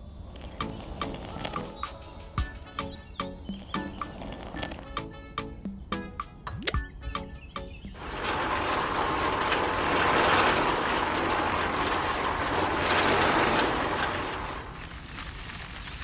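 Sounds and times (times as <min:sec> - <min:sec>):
plastic gear rattle: 0:08.0 - 0:16.0.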